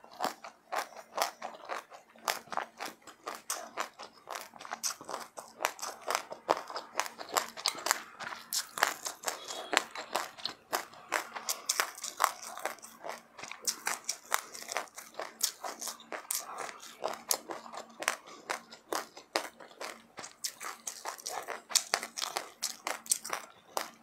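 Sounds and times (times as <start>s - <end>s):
crisp crunchy chewing: 0.0s - 24.0s.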